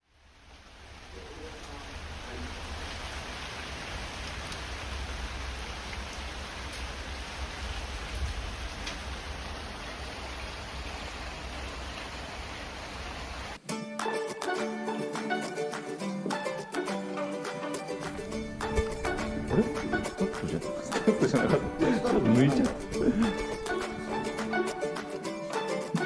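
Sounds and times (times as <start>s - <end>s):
heavy rain falling: 0.0s - 13.6s, 18.0s - 26.0s
low rumble: 18.1s - 24.3s.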